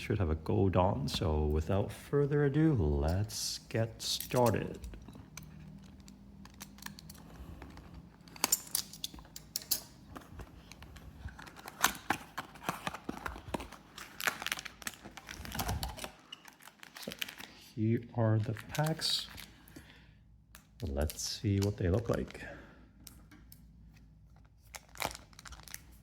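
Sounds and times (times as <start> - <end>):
packaging clicks and crackles: 4.1 - 17.7, 18.3 - 19.9, 20.5 - 26.0.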